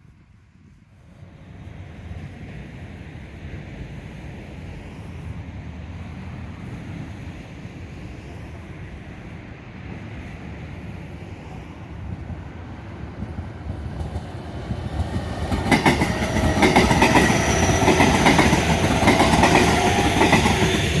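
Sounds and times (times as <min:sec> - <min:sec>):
train rumble: 0:00.4 - 0:21.0
train wheels clattering over rail joints: 0:14.0 - 0:21.0
train whining tones: 0:14.0 - 0:21.0.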